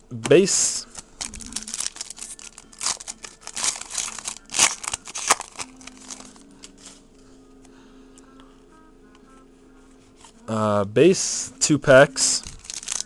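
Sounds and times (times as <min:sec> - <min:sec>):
card pack wrapper crinkling and tearing: 0:00.2 - 0:07.0, 0:12.2 - 0:13.0.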